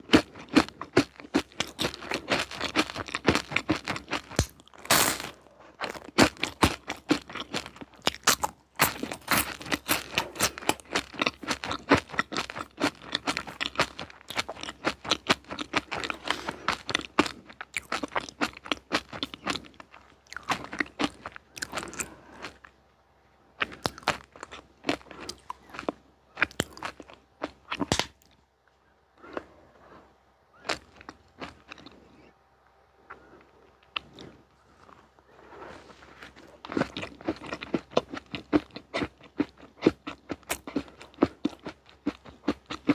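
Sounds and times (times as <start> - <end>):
chewing crunchy sweets: 0.0 - 42.9.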